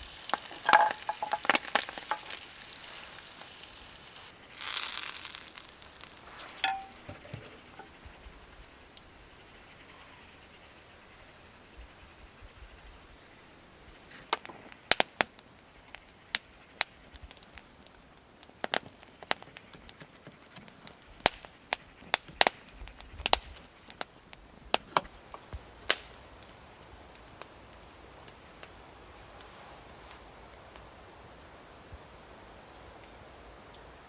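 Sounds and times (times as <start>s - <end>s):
faint outdoor hiss: 0.0s - 34.0s
sharp cracks and snaps: 4.3s - 8.2s, 14.2s - 30.0s.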